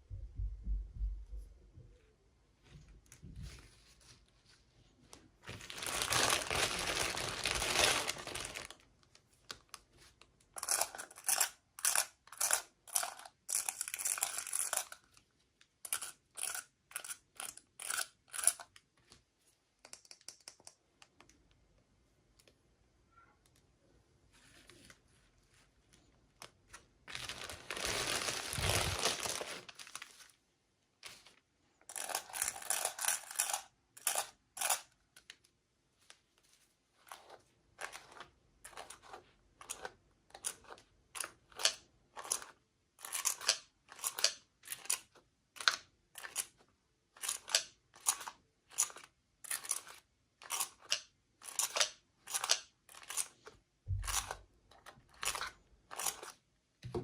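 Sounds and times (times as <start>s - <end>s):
packaging crinkling: 5.4s - 9.8s, 27.1s - 30.4s
packaging tearing: 5.5s - 8.8s, 27.1s - 30.2s.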